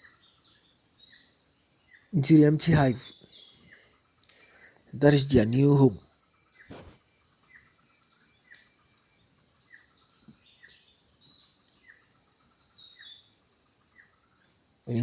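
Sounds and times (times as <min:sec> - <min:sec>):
insect chorus trilling: 0:00.0 - 0:15.0
short repeating call: 0:02.2 - 0:03.1, 0:05.0 - 0:06.0.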